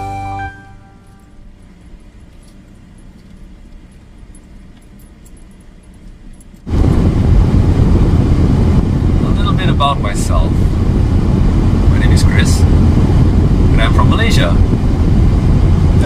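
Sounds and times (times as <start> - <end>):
guitar music: 0.0 - 1.3
loud low rumbling noise: 6.7 - 16.0.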